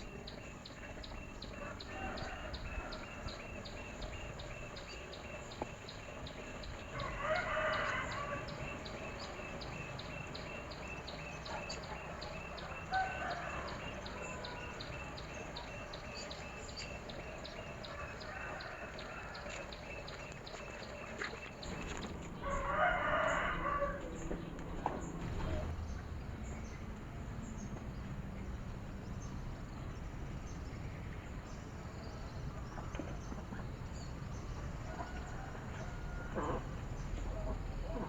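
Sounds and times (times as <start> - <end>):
bird calls: 0.0 - 27.7
rooster crowing: 1.5 - 3.6, 6.8 - 8.9, 12.6 - 15.3, 17.8 - 19.7, 21.7 - 25.7, 34.8 - 36.8.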